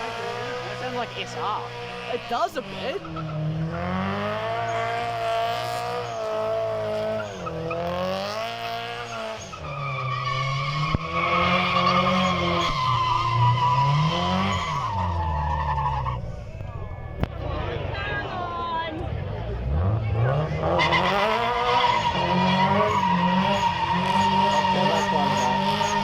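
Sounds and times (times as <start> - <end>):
car engine revving hard: 0.0 - 15.6, 19.6 - 26.0
tyres squealing: 20.8 - 26.0.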